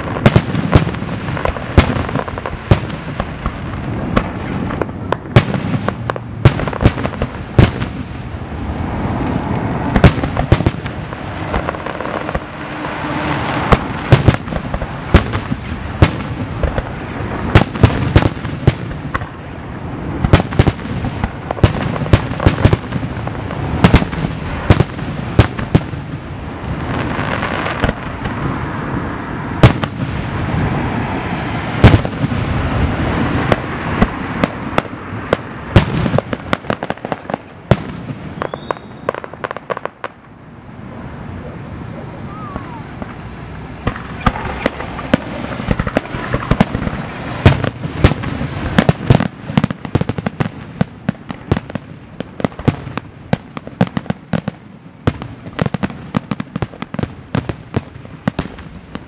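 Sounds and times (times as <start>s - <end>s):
crackling hiss of fireworks: 0.0s - 59.0s
firework shells bursting: 33.4s - 40.2s, 43.8s - 54.5s.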